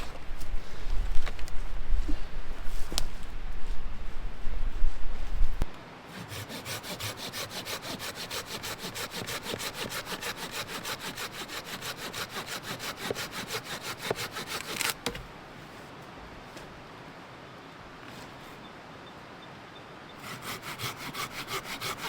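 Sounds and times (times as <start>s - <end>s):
hand saw cutting wood: 6.1s - 15.2s, 20.2s - 22.0s.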